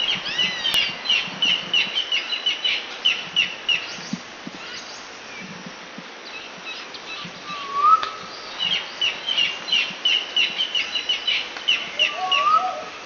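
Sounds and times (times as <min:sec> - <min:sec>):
bird whistled call: 0:07.1 - 0:12.9.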